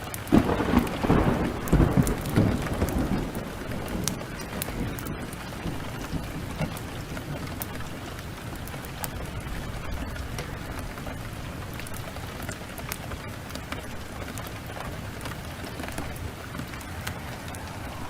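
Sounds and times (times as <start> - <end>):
heavy rain: 0.0 - 18.0
wood fire crackling: 0.0 - 18.0.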